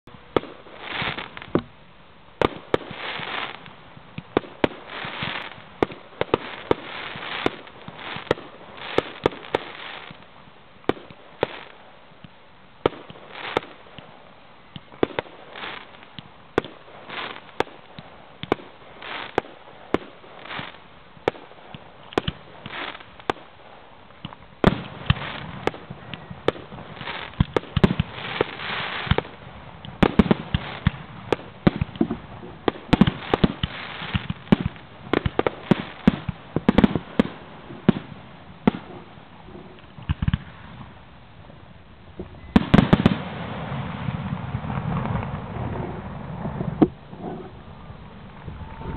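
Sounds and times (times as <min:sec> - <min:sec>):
firework crackle: 0:00.0 - 0:48.9
distant firework bangs: 0:24.2 - 0:41.0, 0:42.2 - 0:48.9.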